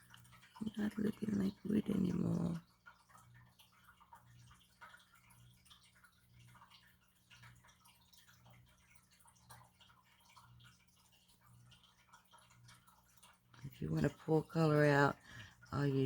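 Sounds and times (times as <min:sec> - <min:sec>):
faint small ticks: 0:00.0 - 0:01.0, 0:02.5 - 0:13.7.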